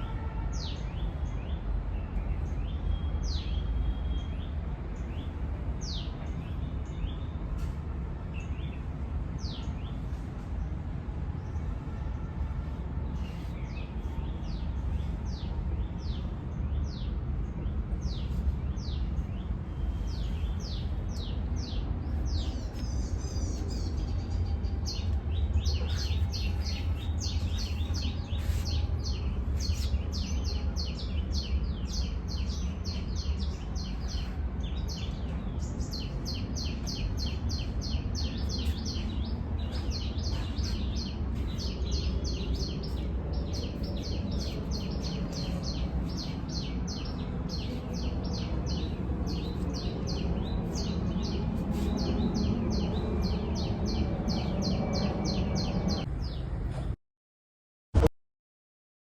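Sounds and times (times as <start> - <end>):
birds chirping: 15.3 - 56.4.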